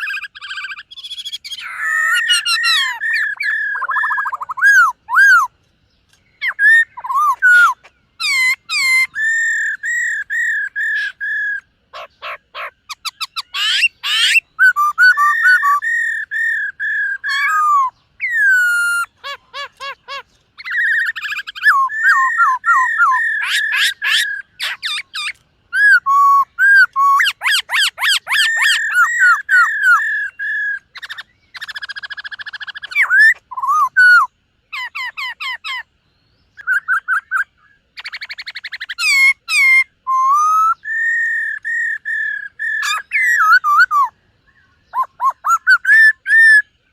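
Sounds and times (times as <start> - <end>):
bird singing whistled song: 0.0 - 46.9.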